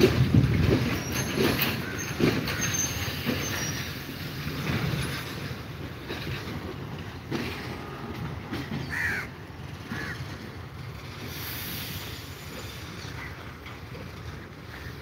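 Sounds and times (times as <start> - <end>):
wheels knocking over rail joints: 0.0 - 11.0
train wheels rumbling on rails: 0.0 - 15.0.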